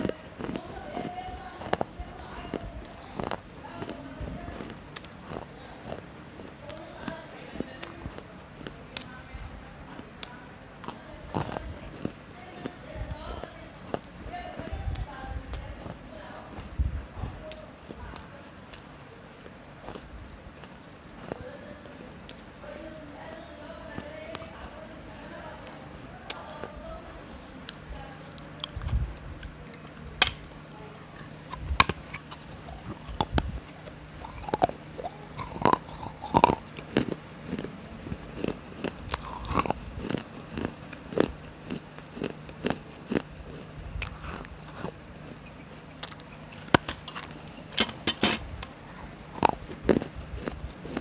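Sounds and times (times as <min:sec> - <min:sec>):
steady low hum: 0:00.0 - 0:51.0
crunching clay cup bites: 0:27.7 - 0:43.3, 0:44.0 - 0:51.0.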